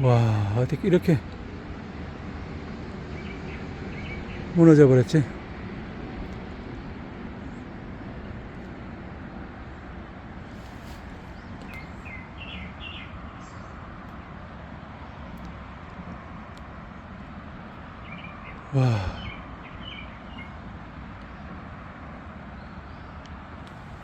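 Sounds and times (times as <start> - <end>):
bird chirping: 11.2 - 13.8, 18.0 - 20.6.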